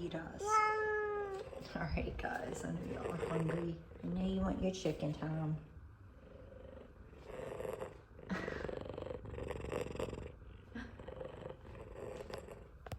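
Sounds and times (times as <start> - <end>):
cat purring loudly: 1.2 - 4.5, 6.1 - 12.9.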